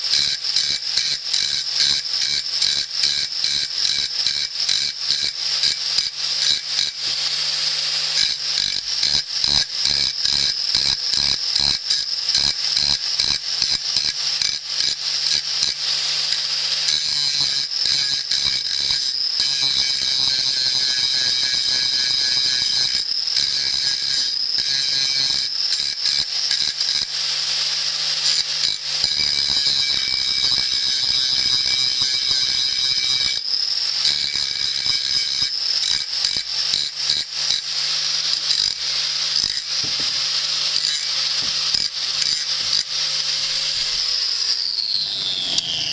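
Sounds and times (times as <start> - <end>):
abrasive rasping on steel: 34.0 - 44.0.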